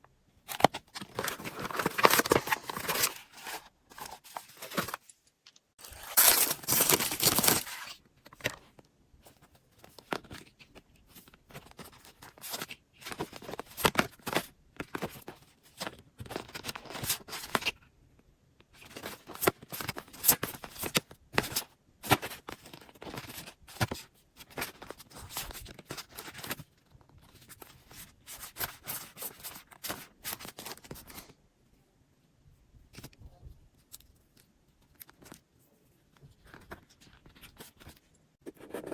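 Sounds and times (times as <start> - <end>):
packaging tearing and crinkling: 0.6 - 5.0, 5.8 - 8.0.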